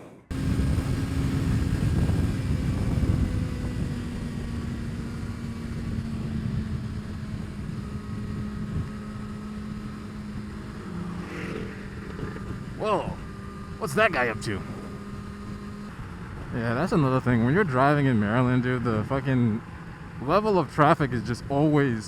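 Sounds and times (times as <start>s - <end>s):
motorcycle engine running: 0.3s - 22.0s
heavy low rumble: 10.4s - 13.2s.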